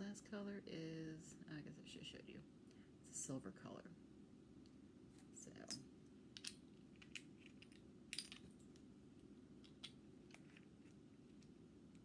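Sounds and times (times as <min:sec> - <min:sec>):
low steady hum: 0:00.0 - 0:12.0
small objects clicking and tapping: 0:06.4 - 0:08.8.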